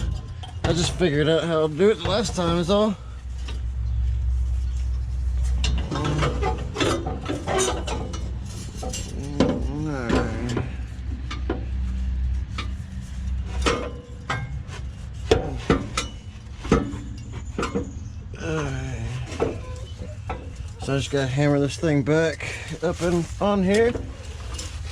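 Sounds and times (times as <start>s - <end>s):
low steady hum: 0.0s - 24.9s
metal clinks and knocks: 5.4s - 21.1s.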